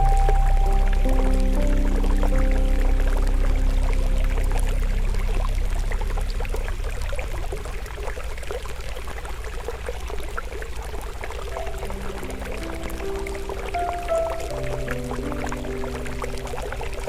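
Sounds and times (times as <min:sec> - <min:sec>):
soft held music notes: 0:00.0 - 0:07.5, 0:11.3 - 0:17.0
stream flowing: 0:00.0 - 0:17.0
campfire crackling: 0:10.6 - 0:17.0.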